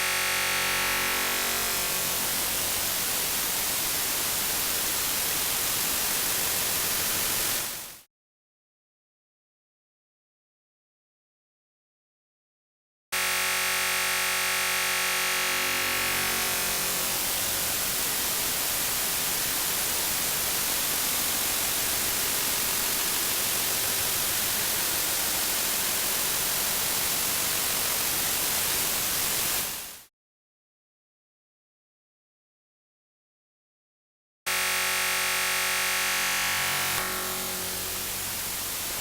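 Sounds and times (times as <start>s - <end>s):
white-noise hiss: 0.0s - 8.0s, 15.4s - 30.1s, 37.2s - 39.0s
buzzy synthesized tone: 34.5s - 39.0s.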